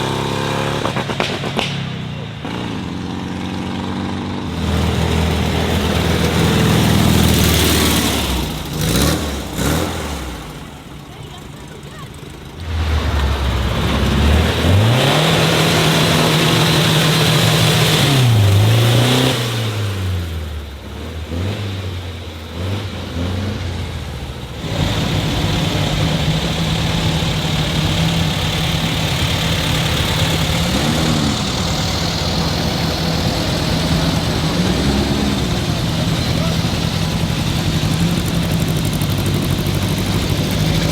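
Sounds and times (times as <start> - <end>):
car engine revving: 0.0 - 11.2, 11.9 - 40.9.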